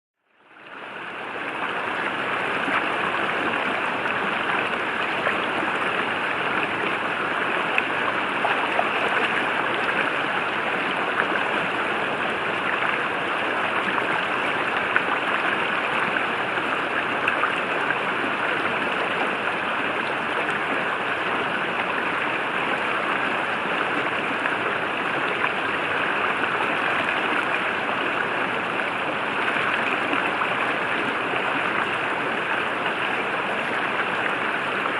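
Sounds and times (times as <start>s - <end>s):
river water rushing: 0.4s - 34.9s.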